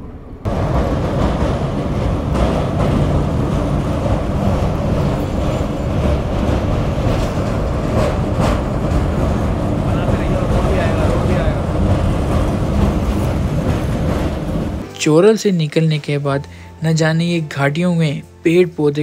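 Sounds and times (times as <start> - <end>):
passenger train rumbling on track: 0.0 - 14.9.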